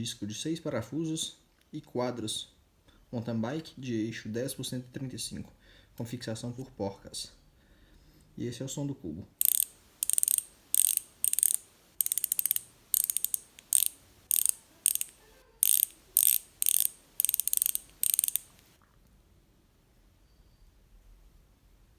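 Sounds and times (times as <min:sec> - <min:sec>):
freewheel ratchet clicking: 0:09.4 - 0:18.6.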